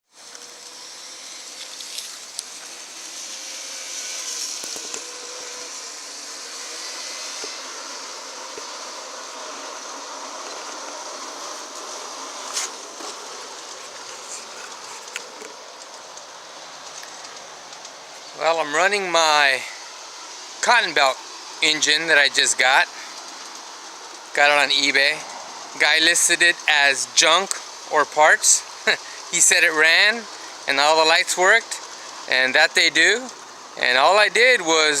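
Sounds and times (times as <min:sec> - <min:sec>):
model locomotive motor whirring: 0:00.1 - 0:18.4.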